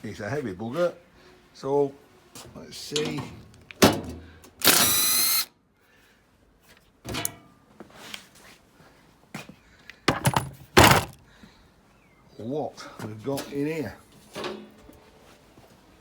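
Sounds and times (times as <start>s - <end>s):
power drill burst: 4.6s - 5.5s
knocks and clunks: 10.1s - 11.2s.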